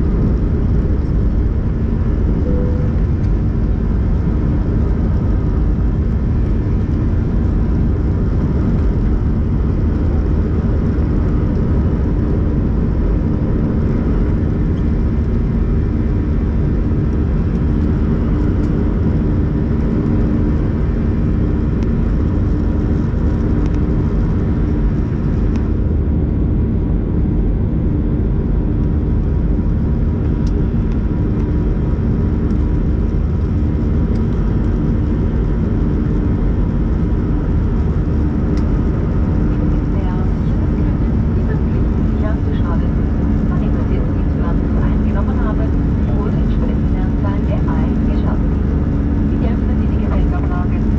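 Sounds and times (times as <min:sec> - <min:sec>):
airplane cabin engine rumble: 0:00.0 - 0:50.9.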